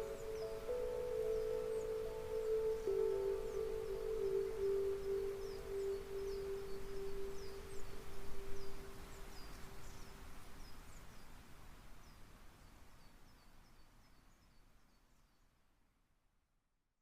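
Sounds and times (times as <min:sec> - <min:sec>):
singing bowl ringing: 0:00.0 - 0:07.7
small birds chirping: 0:00.0 - 0:15.5
soft natural background hiss: 0:00.0 - 0:17.0.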